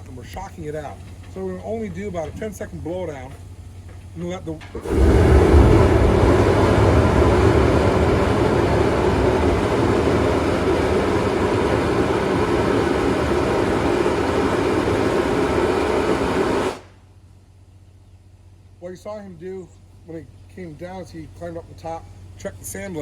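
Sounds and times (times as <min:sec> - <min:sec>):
steam blasting from valve: 0:04.8 - 0:17.0.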